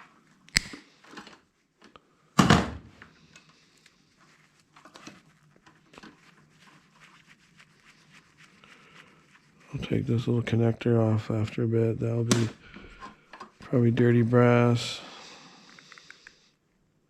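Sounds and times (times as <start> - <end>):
sharp click: 0.5 - 0.8.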